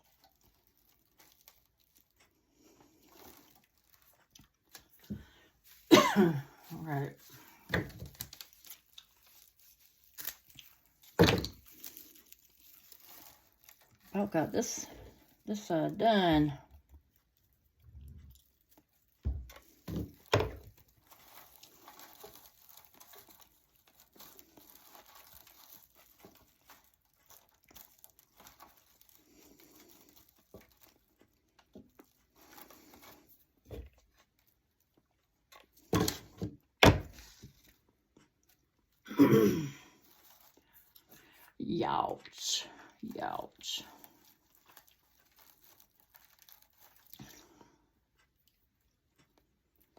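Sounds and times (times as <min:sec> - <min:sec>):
hay rustling and crinkling: 0:06.6 - 0:15.4, 0:19.7 - 0:31.2, 0:44.0 - 0:47.2.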